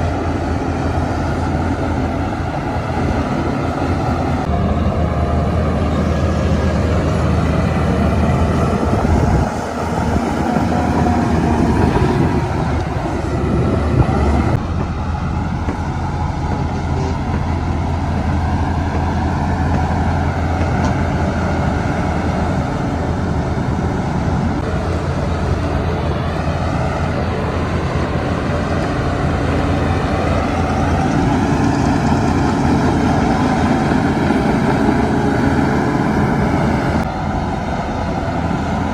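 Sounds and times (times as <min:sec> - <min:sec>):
bulldozer diesel engine: 0:00.0 - 0:38.9
dump truck engines running: 0:00.0 - 0:38.9.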